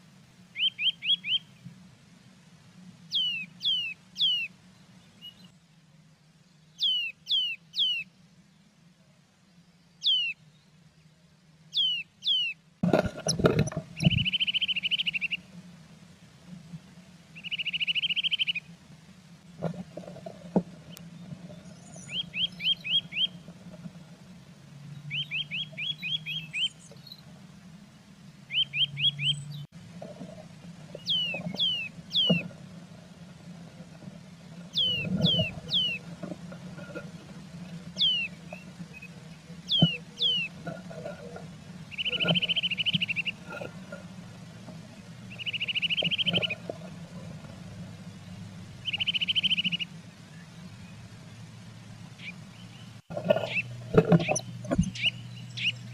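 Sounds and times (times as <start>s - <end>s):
small songbird singing: 0.5s - 1.6s, 3.1s - 5.6s, 6.4s - 8.2s, 9.5s - 11.1s, 11.7s - 12.6s, 14.0s - 15.5s, 17.4s - 18.7s, 20.9s - 23.4s, 24.8s - 27.2s, 28.5s - 29.7s, 31.0s - 32.4s, 34.7s - 36.0s, 38.0s - 40.6s, 41.8s - 43.4s, 45.3s - 46.6s, 48.0s - 51.0s, 52.2s - 55.9s
buzzy bird trills: 13.9s - 15.4s, 17.4s - 18.7s, 21.7s - 23.4s, 31.0s - 32.4s, 34.7s - 36.0s, 37.9s - 40.6s, 41.8s - 43.5s, 45.3s - 46.6s, 48.2s - 49.9s.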